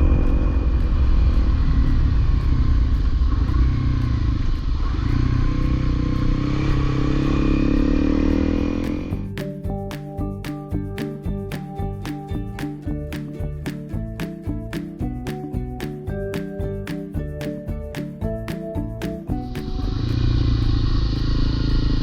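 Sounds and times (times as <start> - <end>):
motorcycle engine rumbling: 0.0 - 9.9, 19.3 - 22.0.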